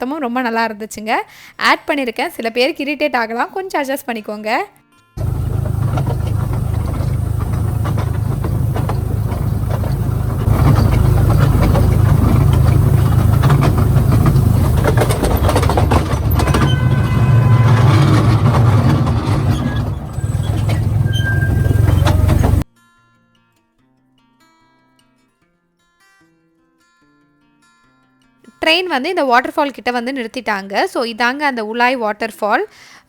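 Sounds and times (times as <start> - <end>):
train rumbling on track: 5.2 - 22.6
wheels clacking over rails: 5.2 - 22.6.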